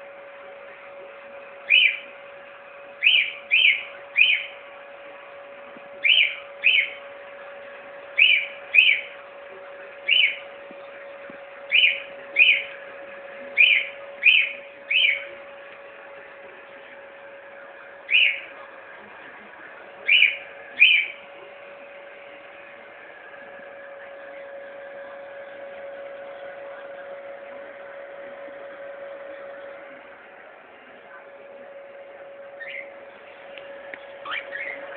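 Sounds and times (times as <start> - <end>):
hair dryer humming: 0.0 - 34.9
cockatiel chirping: 1.6 - 2.1, 3.0 - 4.5, 6.0 - 7.0, 8.2 - 9.1, 10.0 - 10.4, 11.7 - 12.8, 13.5 - 15.3, 18.1 - 18.5, 20.0 - 21.2, 32.6 - 32.9, 34.2 - 34.9.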